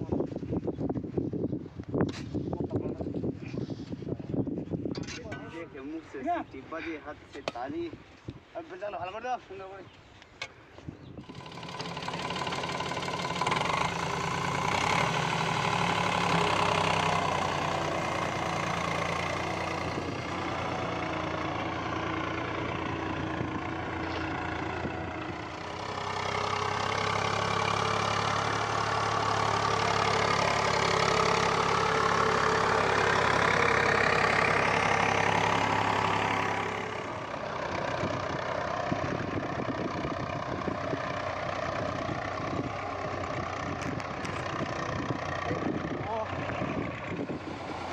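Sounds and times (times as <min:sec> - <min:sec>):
tractor diesel engine running: 0:11.1 - 0:47.9.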